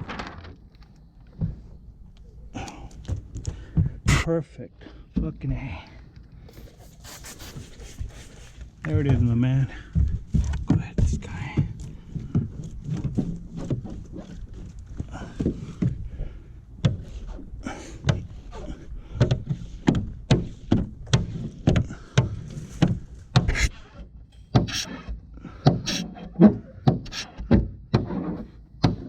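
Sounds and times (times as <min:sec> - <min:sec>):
squeegee rubbing on wet glass: 0:06.5 - 0:08.7, 0:12.8 - 0:14.7, 0:25.9 - 0:26.3.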